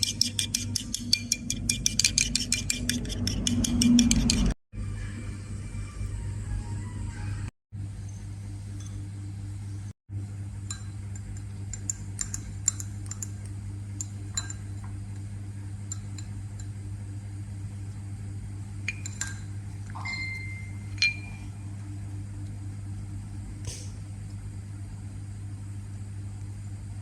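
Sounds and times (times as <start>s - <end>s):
utensil clinking on glass: 18.9s - 21.4s.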